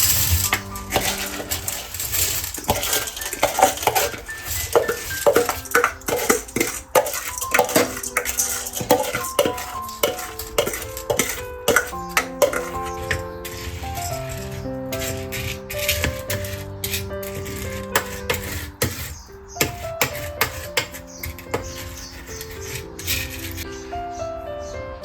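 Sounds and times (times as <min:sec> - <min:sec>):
utensils clinking on dishes: 0:00.0 - 0:23.7
background music with held notes: 0:00.0 - 0:25.0.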